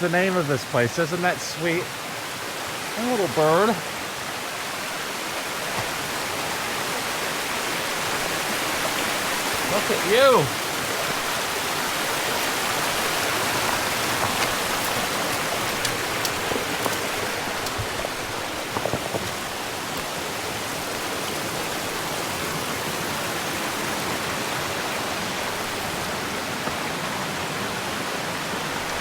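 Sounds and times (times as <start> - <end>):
small waterfall rushing: 0.0 - 29.0
faint clicks: 14.1 - 19.3.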